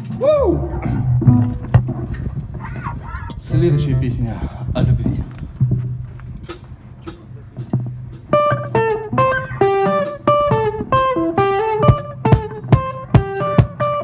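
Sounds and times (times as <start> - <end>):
guitar picking a riff: 0.0 - 4.0, 7.4 - 14.0
low steady hum: 0.0 - 9.8.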